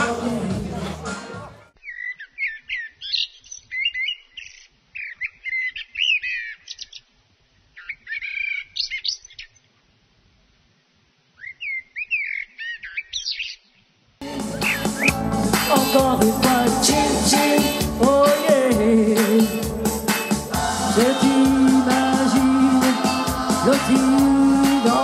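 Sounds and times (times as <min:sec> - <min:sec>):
bird chirping: 0:01.8 - 0:07.1, 0:07.7 - 0:09.7, 0:11.4 - 0:13.9, 0:14.6 - 0:15.2.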